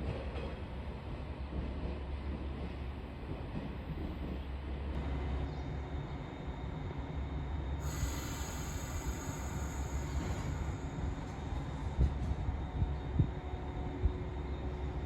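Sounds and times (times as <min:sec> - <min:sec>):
train rumbling on rails: 0:00.0 - 0:15.0
high-pitched squeal: 0:07.8 - 0:12.0.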